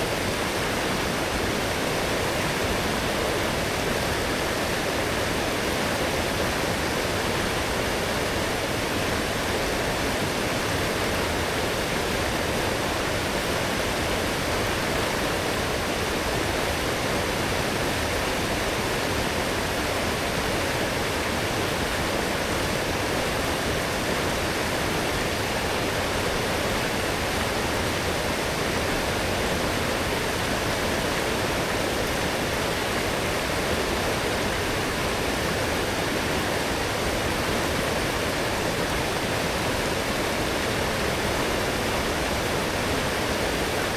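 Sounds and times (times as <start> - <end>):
stream rushing: 0.0 - 43.9.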